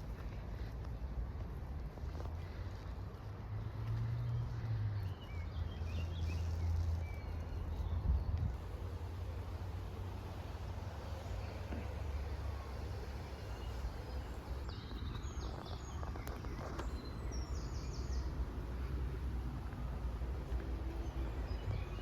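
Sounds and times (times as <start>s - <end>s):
steady low rumble: 7.5s - 22.0s.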